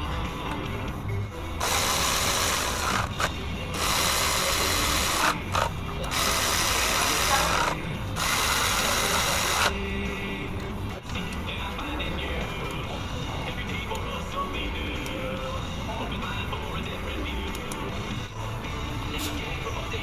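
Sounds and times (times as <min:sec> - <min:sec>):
handheld power tool running: 0:01.6 - 0:09.8.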